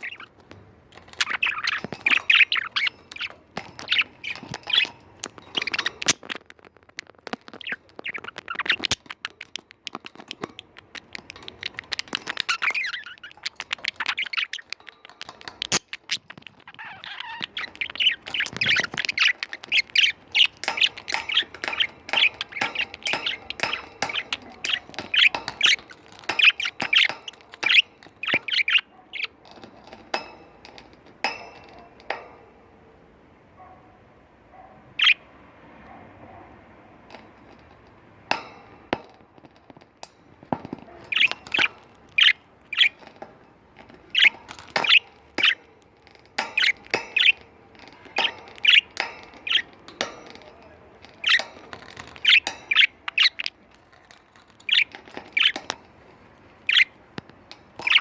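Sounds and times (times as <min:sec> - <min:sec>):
budgies chattering and chirping: 0:00.0 - 0:32.8, 0:34.8 - 0:58.0.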